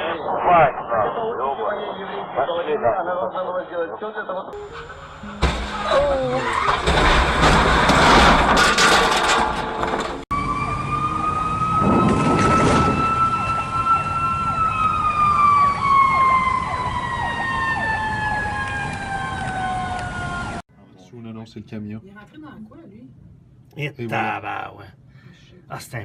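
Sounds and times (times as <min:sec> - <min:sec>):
vehicle and road noise: 0:04.6 - 0:20.6
mechanical siren winding down: 0:10.3 - 0:20.6.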